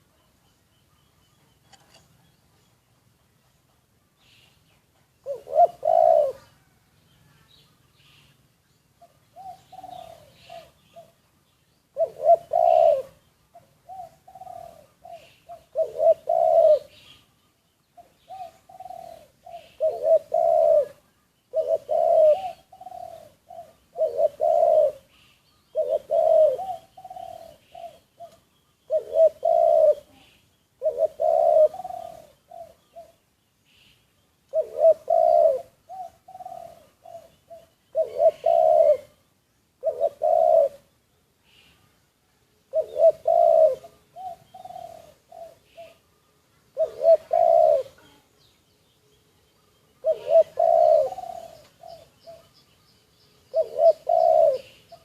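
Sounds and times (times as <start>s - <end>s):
doves cooing: 5.1s - 8.4s, 9.0s - 11.2s, 11.9s - 17.3s, 18.0s - 33.2s, 34.5s - 39.2s, 39.8s - 41.8s, 42.7s - 48.4s, 49.8s - 52.8s, 53.4s - 55.0s.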